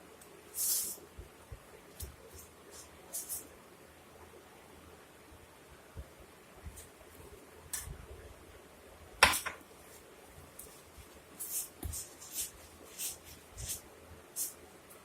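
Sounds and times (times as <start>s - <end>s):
hands kneading dough: 9.3s - 15.0s.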